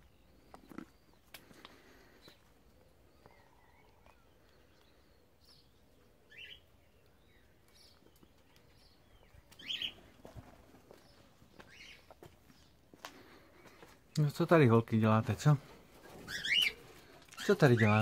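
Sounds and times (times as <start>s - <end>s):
cockatiels chirping: 16.2s - 16.8s.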